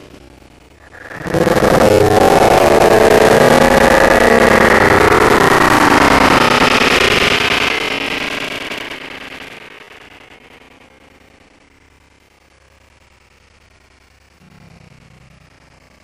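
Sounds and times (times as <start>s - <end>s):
harsh distorted roar: 0.8s - 10.6s.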